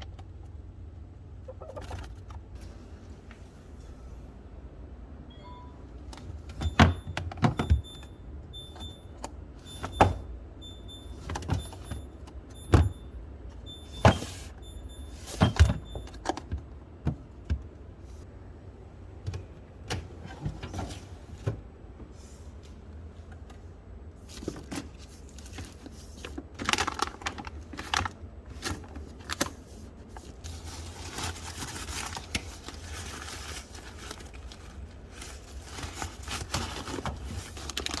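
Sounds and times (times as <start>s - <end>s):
faint high beeps: 5.3s - 5.9s.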